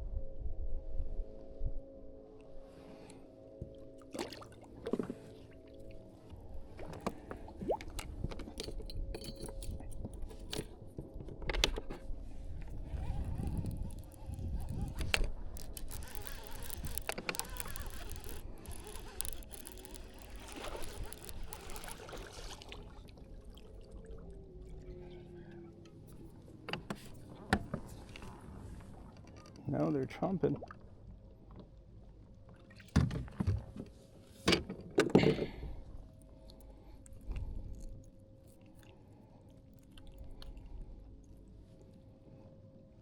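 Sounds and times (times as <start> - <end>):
water splashing and trickling: 3.6 - 10.7, 12.8 - 25.5.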